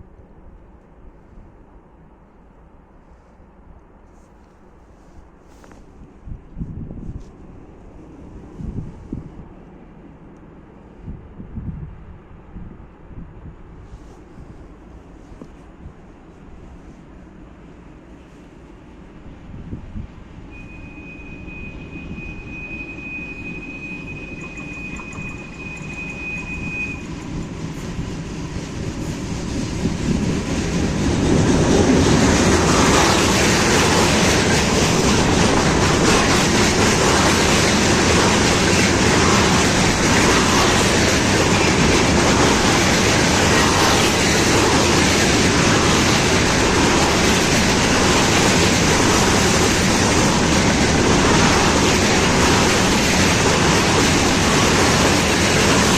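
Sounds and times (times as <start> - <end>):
high squeal: 20.5 - 27.6
train wheels clattering: 22.8 - 55.9.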